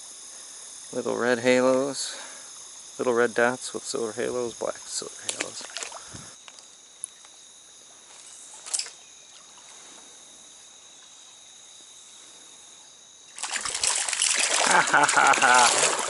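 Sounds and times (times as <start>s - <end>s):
faint stream running: 0.0s - 16.0s
insects chirring: 0.0s - 16.0s
rustle: 0.0s - 16.0s
fish splashing at surface: 5.3s - 6.1s, 13.3s - 16.0s.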